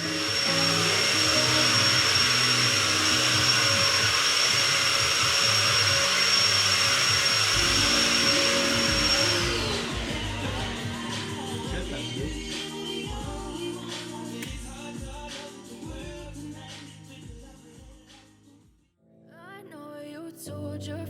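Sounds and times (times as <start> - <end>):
electric motor whining: 0.0 - 12.7
background music: 0.0 - 18.6.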